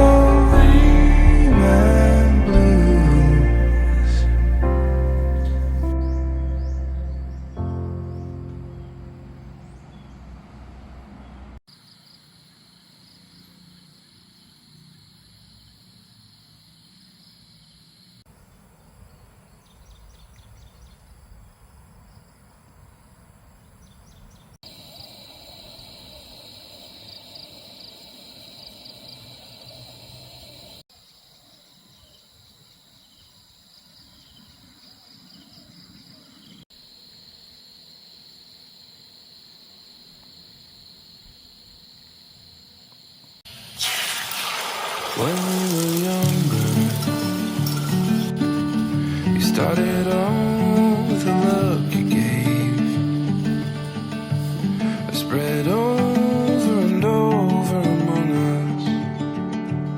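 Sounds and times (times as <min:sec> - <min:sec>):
music: 0:00.0 - 0:09.3, 0:45.9 - 0:59.9
insects trilling: 0:11.7 - 0:59.5.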